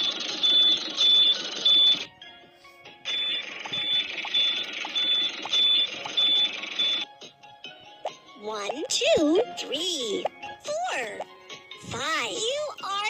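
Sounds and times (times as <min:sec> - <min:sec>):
high electronic beeping: 0:00.0 - 0:02.1, 0:03.0 - 0:07.1.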